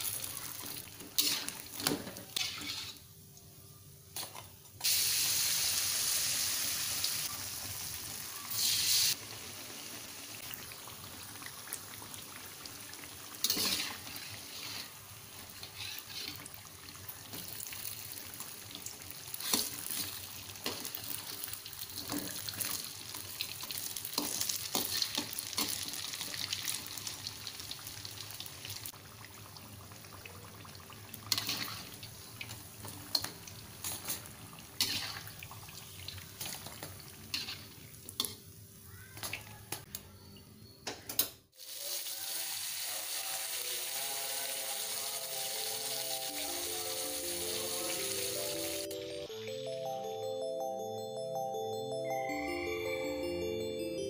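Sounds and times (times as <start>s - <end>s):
food deep-frying in oil: 0.0s - 3.4s, 4.2s - 39.9s, 41.6s - 48.9s.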